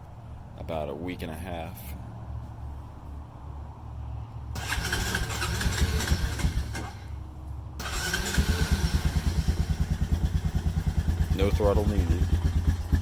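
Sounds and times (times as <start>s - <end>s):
engine idling: 4.5s - 13.0s
engine electric starter cranking: 4.6s - 7.2s, 7.8s - 10.0s.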